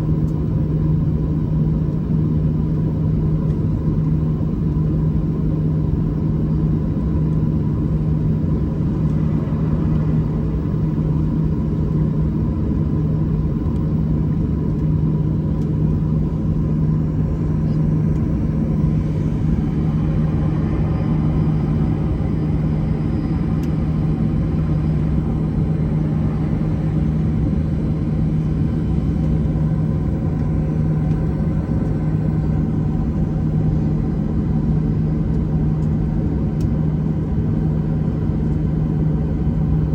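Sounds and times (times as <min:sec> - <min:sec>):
machinery drone: 0:07.2 - 0:14.8, 0:15.4 - 0:36.2.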